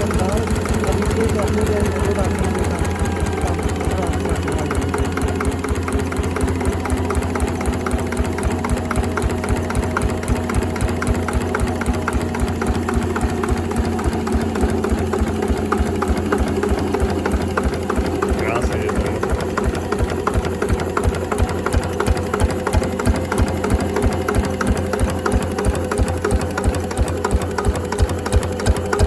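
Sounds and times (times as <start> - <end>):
stationary diesel engine idling: 0.0 - 29.0.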